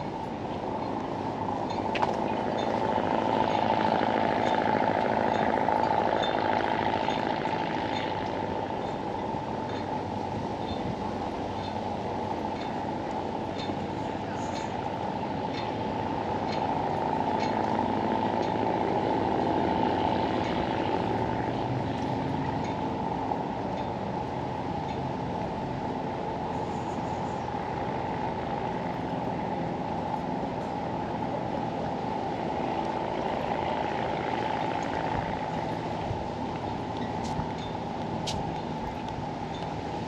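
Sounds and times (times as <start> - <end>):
low outdoor rumble: 0.0 - 40.0.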